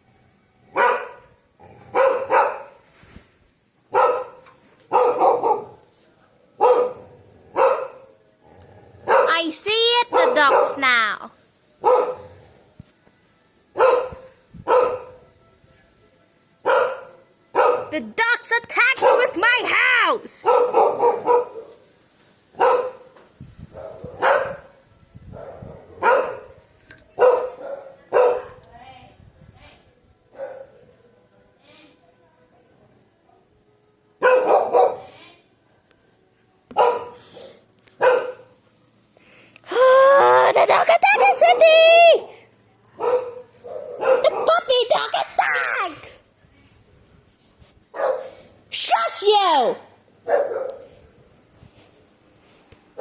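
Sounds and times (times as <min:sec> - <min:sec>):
dog barking: 0:00.7 - 0:01.3, 0:01.9 - 0:02.8, 0:03.9 - 0:05.8, 0:06.6 - 0:08.1, 0:09.1 - 0:09.4, 0:10.1 - 0:10.8, 0:11.8 - 0:12.3, 0:13.8 - 0:15.2, 0:16.6 - 0:17.9, 0:19.0 - 0:19.4, 0:20.4 - 0:21.8, 0:22.6 - 0:23.1, 0:23.8 - 0:26.6, 0:27.2 - 0:28.6, 0:30.4 - 0:30.8, 0:34.2 - 0:35.1, 0:36.8 - 0:37.2, 0:38.0 - 0:38.6, 0:43.0 - 0:44.7, 0:48.0 - 0:48.4, 0:50.2 - 0:50.9.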